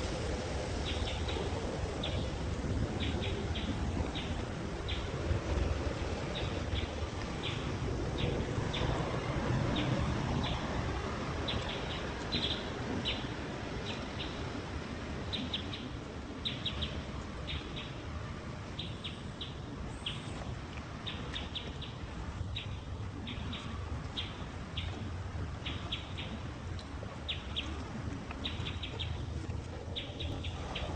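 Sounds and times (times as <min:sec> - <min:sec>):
steady low rumble: 0:00.0 - 0:30.9
birds chirping: 0:11.4 - 0:14.6, 0:15.2 - 0:26.5, 0:27.2 - 0:30.9.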